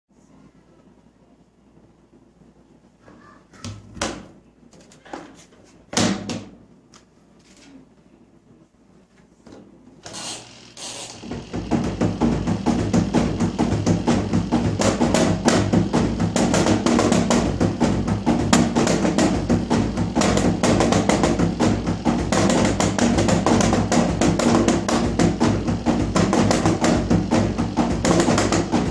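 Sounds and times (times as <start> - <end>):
steady low hum: 0.1 - 28.9
fast rhythmic drumming: 11.1 - 28.9.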